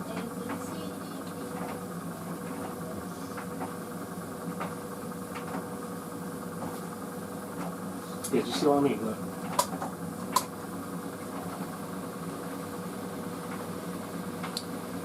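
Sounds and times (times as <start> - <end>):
tumble dryer motor hum: 0.0 - 15.0.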